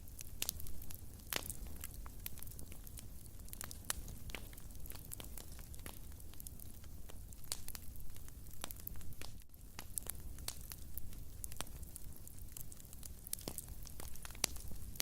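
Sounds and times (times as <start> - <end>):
fireplace fire crackling: 0.0 - 15.0
low rumble of flames: 0.0 - 15.0
sharp pops and snaps: 13.3 - 15.0.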